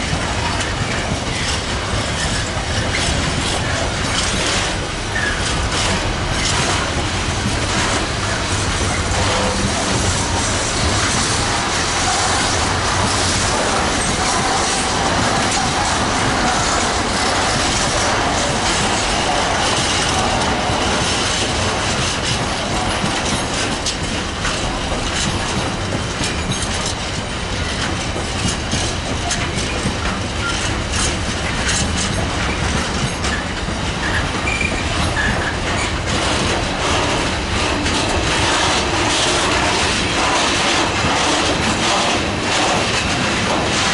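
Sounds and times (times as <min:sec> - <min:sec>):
train wheels rumbling: 0:00.0 - 0:43.9
wheel squeals: 0:32.4 - 0:36.0.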